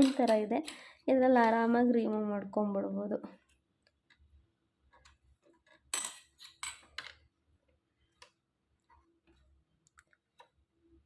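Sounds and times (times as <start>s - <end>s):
metal parts clicking and clinking: 5.6s - 7.2s.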